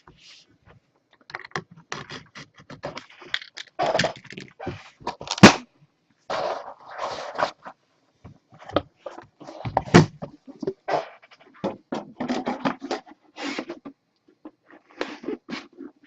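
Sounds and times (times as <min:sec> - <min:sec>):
sharp crack of packaging: 0:05.3 - 0:05.7.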